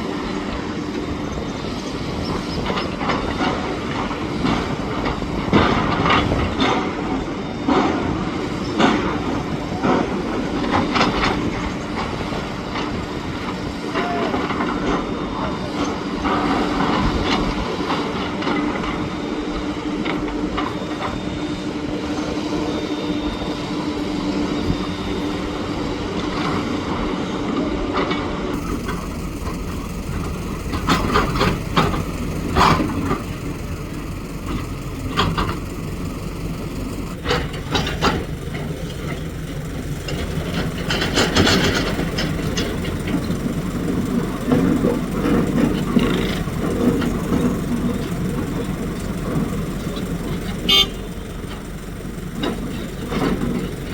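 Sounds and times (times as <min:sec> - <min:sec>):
vehicle engine hum: 0:28.5 - 0:53.9.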